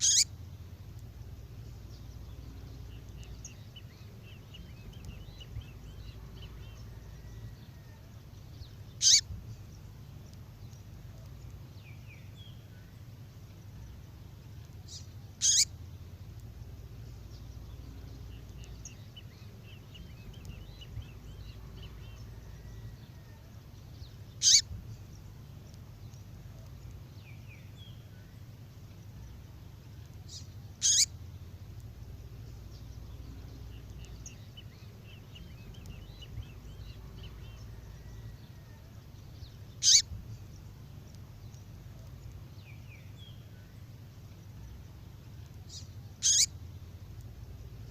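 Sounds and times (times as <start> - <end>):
short sharp high bird call: 0.0 - 0.3
faint bird chirps: 0.0 - 47.9
low steady rumble: 0.0 - 47.9.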